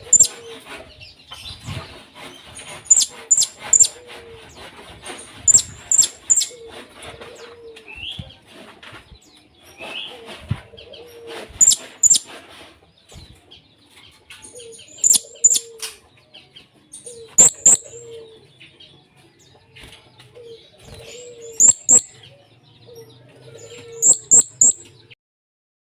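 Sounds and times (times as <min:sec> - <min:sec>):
parrot shrill high calls: 0:17.4 - 0:17.9, 0:21.6 - 0:22.1, 0:24.0 - 0:24.8.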